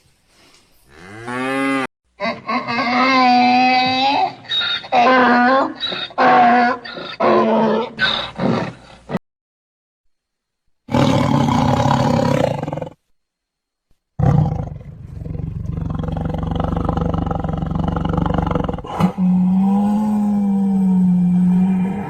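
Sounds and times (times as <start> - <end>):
animal roaring calls: 10.9 - 13.0, 14.2 - 22.0.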